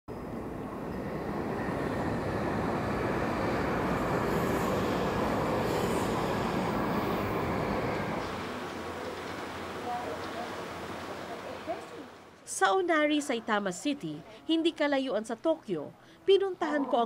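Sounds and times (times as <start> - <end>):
train rushing past: 0.1 - 12.3.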